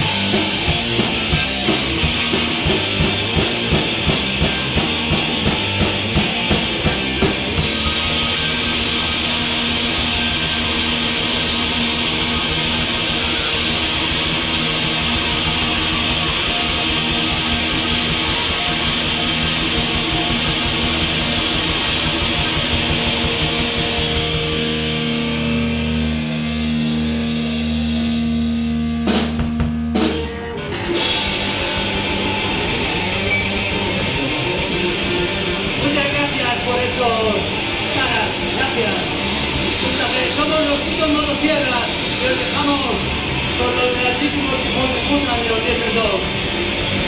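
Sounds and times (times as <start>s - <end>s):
live rock band playing: 0.0s - 47.0s.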